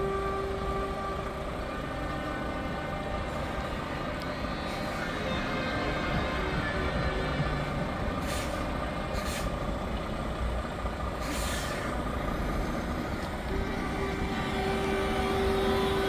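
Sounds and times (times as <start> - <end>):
steady horn-like tone: 0.0 - 9.5, 12.4 - 16.0
truck diesel engines running: 0.0 - 16.0
air brake hisses: 4.6 - 5.3, 8.2 - 9.7, 11.2 - 12.1.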